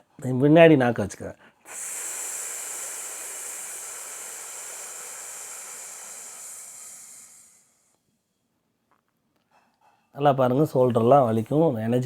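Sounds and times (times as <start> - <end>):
man hissing through teeth: 1.7 - 8.0.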